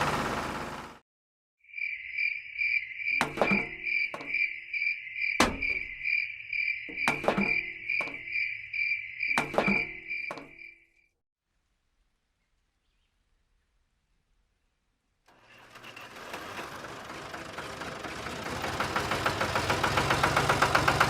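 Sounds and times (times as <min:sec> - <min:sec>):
sharp knocks: 0:03.2 - 0:04.5, 0:05.4 - 0:06.0, 0:06.9 - 0:08.3, 0:09.3 - 0:10.6.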